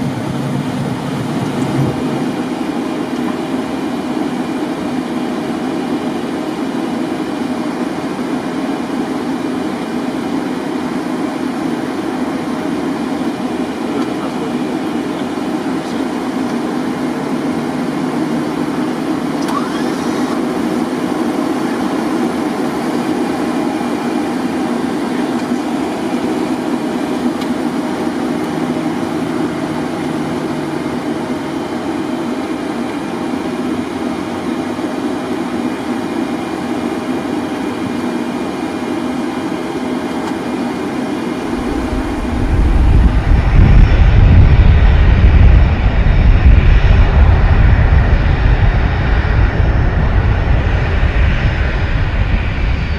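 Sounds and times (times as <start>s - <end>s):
aircraft engine and air-conditioning hum: 0.0s - 52.9s
loud low rumble: 41.4s - 52.9s.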